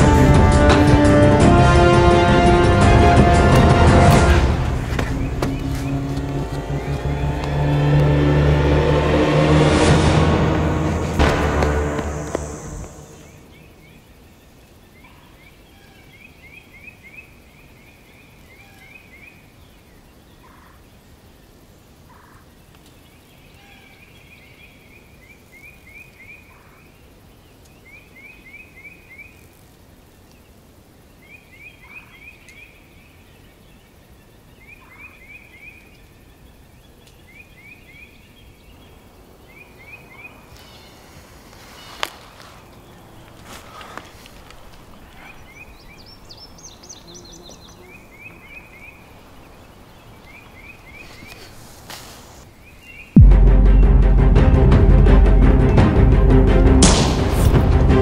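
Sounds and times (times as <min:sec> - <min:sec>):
bird chirping in quick runs: 0:04.7 - 0:07.6, 0:31.2 - 0:53.2
faint background hiss: 0:10.5 - 0:53.2.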